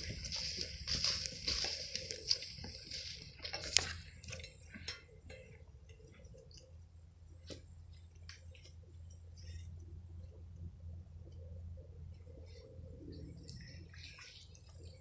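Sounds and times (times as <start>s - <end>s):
footsteps through dry grass: 0.0s - 4.8s.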